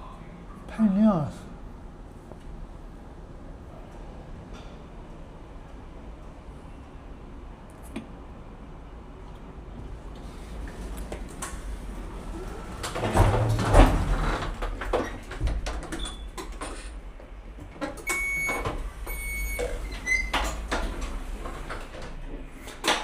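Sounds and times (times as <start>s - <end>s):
lift doors sliding with heavy clunk: 9.8s - 23.0s.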